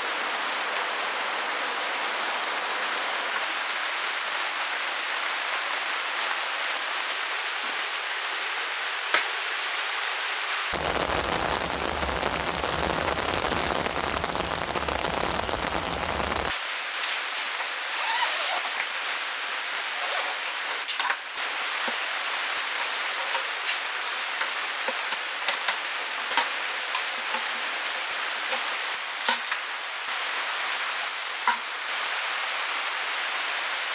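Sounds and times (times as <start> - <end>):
heavy rain falling: 0.0 - 5.8, 10.7 - 16.6
close raindrops ticking: 10.8 - 16.5.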